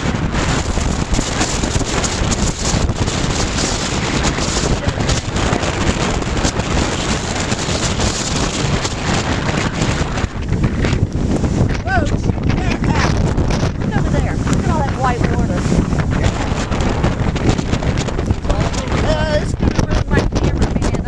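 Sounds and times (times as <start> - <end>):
driving rain: 0.0 - 21.0
surf: 0.0 - 21.0
wind gusting across microphone: 0.0 - 21.0.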